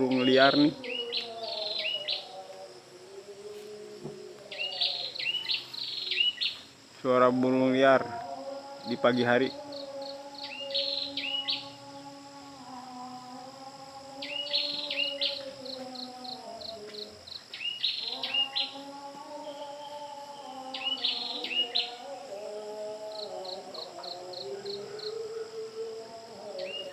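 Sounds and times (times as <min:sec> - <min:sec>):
high insect buzz: 0:00.0 - 0:26.9
sharp high bird calls: 0:10.4 - 0:11.7, 0:17.5 - 0:18.8, 0:20.7 - 0:22.0.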